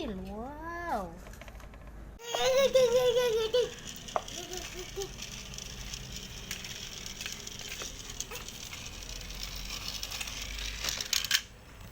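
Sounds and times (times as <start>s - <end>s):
plastic toy cars rattling: 1.6s - 11.9s.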